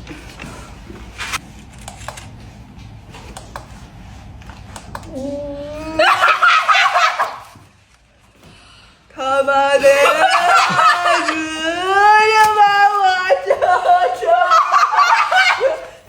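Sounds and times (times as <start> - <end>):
person laughing loudly: 5.8 - 7.6, 9.8 - 12.4, 13.1 - 16.0.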